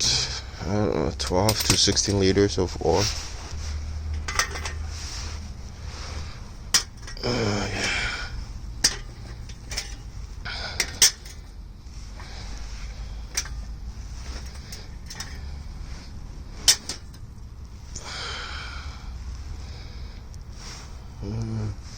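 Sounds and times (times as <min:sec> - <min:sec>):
low steady hum: 0:00.0 - 0:21.9
socket wrench clanking: 0:01.3 - 0:02.2, 0:04.1 - 0:04.8, 0:06.7 - 0:08.0, 0:08.8 - 0:11.5, 0:13.3 - 0:15.5, 0:16.6 - 0:17.3.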